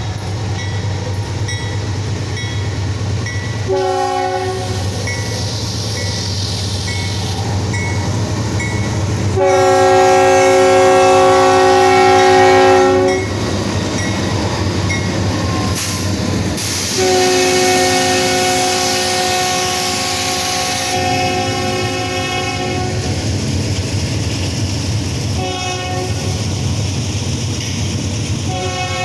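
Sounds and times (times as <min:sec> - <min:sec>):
diesel locomotive rumble: 0:00.0 - 0:29.0
locomotive air horn blasts: 0:03.7 - 0:05.0, 0:09.4 - 0:13.3, 0:16.6 - 0:23.1, 0:25.4 - 0:26.4, 0:28.5 - 0:29.0.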